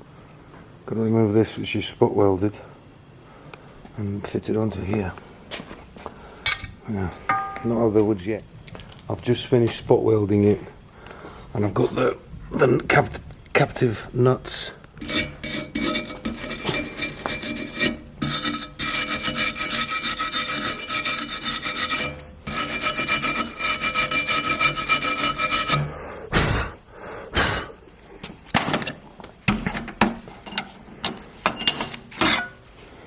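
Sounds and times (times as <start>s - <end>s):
harsh rasping on metal: 15.0s - 26.0s, 32.1s - 32.6s.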